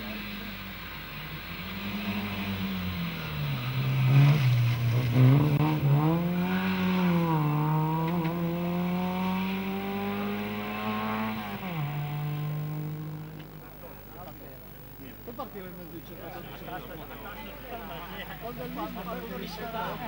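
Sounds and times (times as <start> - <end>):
rally car engine accelerating: 0.0 - 15.0.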